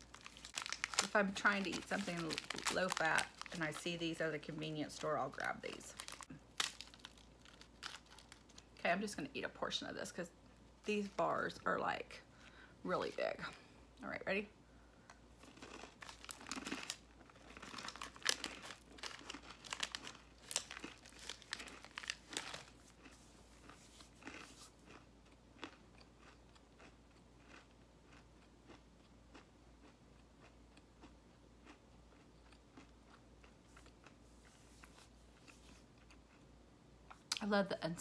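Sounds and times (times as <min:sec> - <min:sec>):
granola bar crunching: 0:00.0 - 0:08.8, 0:15.4 - 0:28.2.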